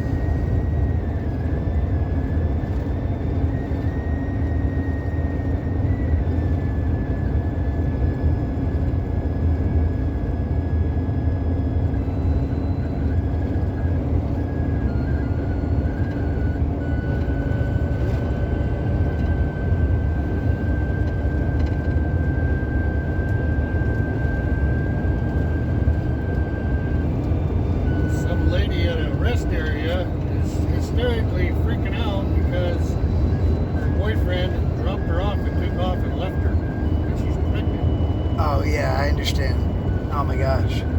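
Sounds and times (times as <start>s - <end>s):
tyres and engine rumble: 0.0s - 40.9s
faint high whine: 11.6s - 40.9s.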